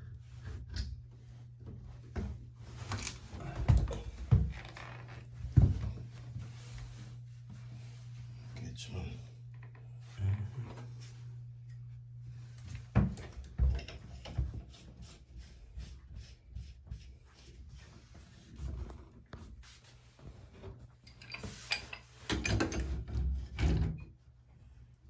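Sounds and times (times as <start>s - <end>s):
tools knocking and clattering: 13.6s - 14.4s.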